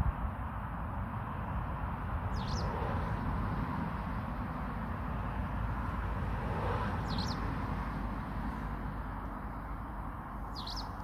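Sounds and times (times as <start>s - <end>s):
small bird chirps: 2.4s - 2.7s, 7.0s - 7.4s, 10.5s - 11.0s.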